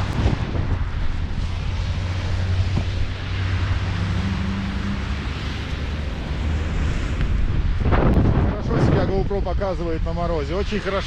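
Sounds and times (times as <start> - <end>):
wind rush on microphone: 0.0 - 11.0.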